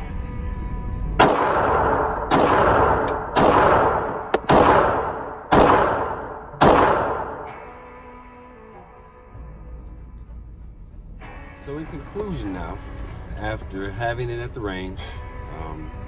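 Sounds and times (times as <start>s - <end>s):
pistol shots echoing: 1.2s - 7.8s.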